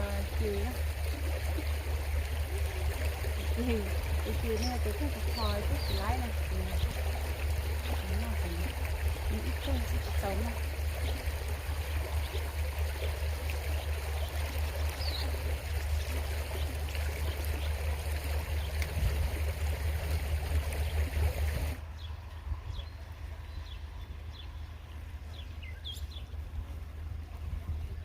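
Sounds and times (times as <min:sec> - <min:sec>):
creek flowing: 0:00.0 - 0:28.0.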